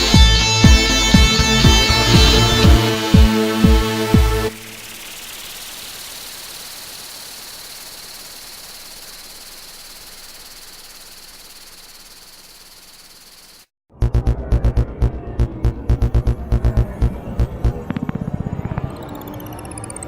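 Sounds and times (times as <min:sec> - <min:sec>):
throbbing bass pulse: 0:00.1 - 0:06.3, 0:13.9 - 0:19.5
steady hiss with high whine: 0:04.4 - 0:13.7.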